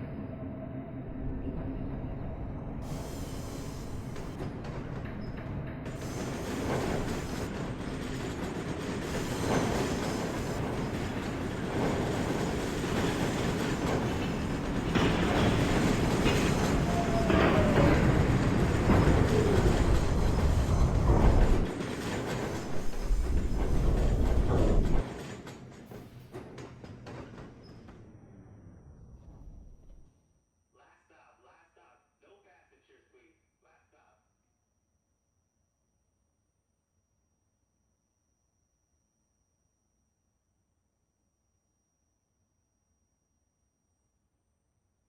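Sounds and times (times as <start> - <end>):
subway train wheels clacking: 1.4 - 28.4.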